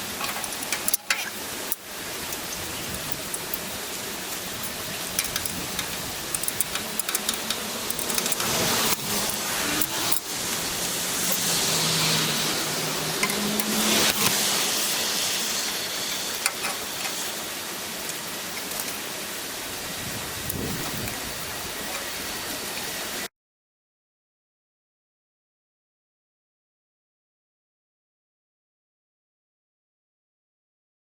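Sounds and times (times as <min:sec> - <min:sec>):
sharp clicks and knocks: 0:00.0 - 0:10.4
steady hiss: 0:00.0 - 0:23.3.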